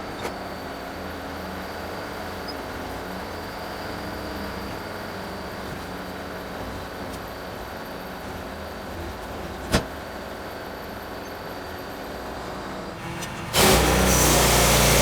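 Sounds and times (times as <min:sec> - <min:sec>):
engine running: 0:13.0 - 0:15.0.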